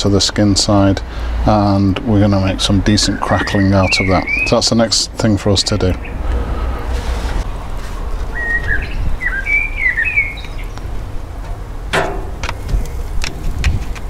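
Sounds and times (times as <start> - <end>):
songbird singing: 2.4 - 6.6, 8.0 - 13.3.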